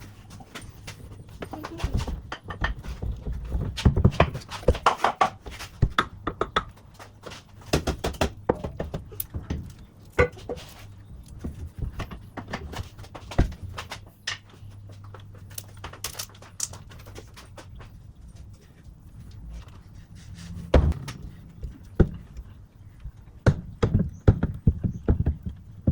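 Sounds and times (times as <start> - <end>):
knocks and clunks on metal parts: 0.6 - 14.5, 20.4 - 25.9.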